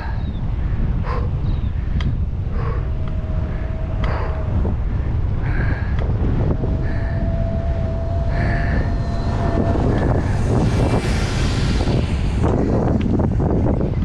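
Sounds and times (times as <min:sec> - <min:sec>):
wind buffeting microphone: 0:00.0 - 0:14.0
thin steady whine: 0:01.7 - 0:14.0.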